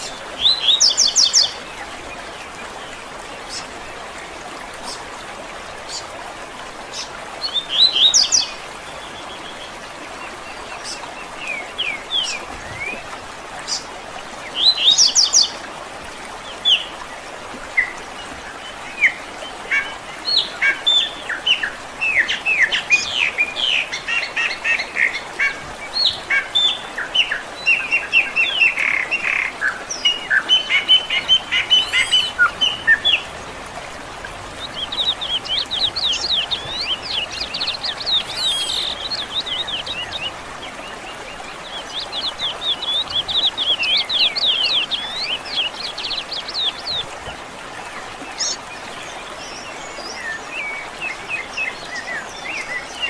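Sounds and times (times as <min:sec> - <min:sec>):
songbirds chirping and singing: 0:19.8 - 0:47.1.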